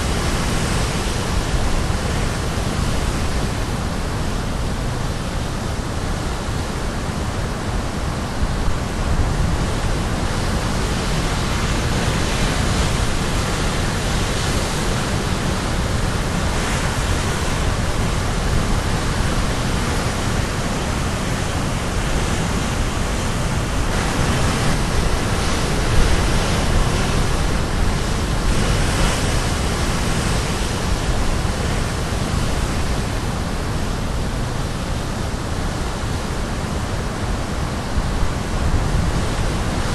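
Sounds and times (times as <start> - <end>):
sea waves breaking on shore: 0.0 - 39.9
wind on microphone: 0.0 - 39.9.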